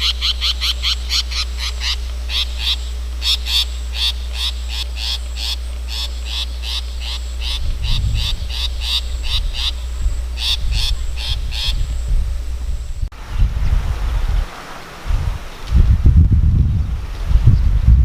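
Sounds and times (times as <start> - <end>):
bird calling harsh notes: 0.0 - 12.6
wind rumble on microphone: 6.8 - 18.0.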